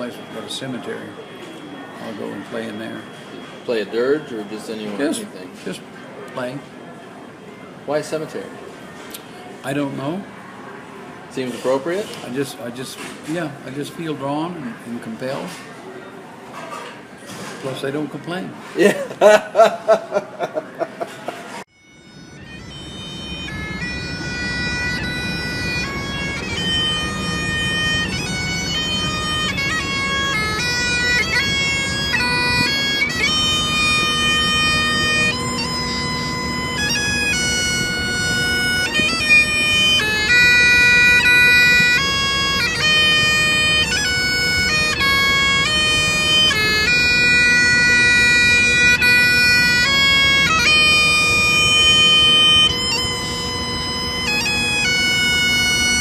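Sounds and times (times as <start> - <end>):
bagpipes playing: 0.0 - 5.4, 21.7 - 56.0.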